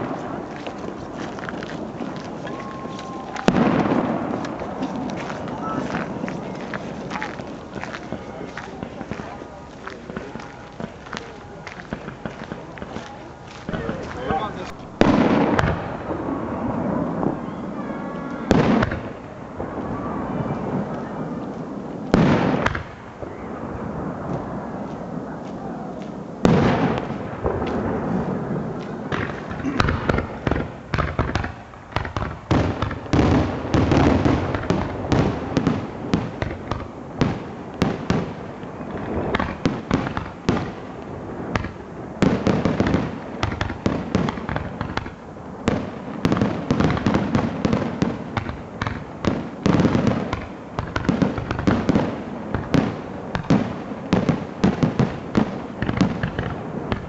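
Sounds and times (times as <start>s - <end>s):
fireworks bangs and booms: 0.0s - 57.0s.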